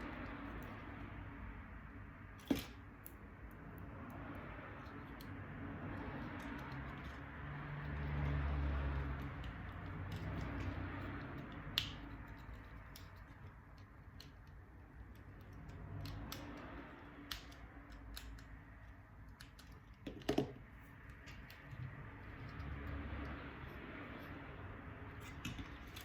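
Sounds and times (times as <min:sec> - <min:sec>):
clicks and taps of small tools: 0:09.2 - 0:23.4.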